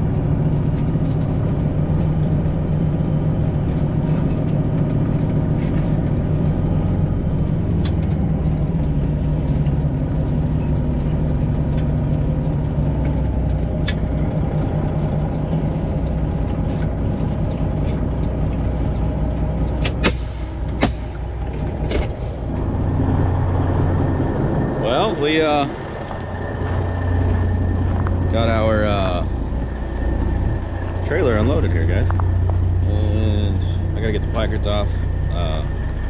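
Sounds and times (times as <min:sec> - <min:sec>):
diesel truck engine droning: 0:00.0 - 0:36.0.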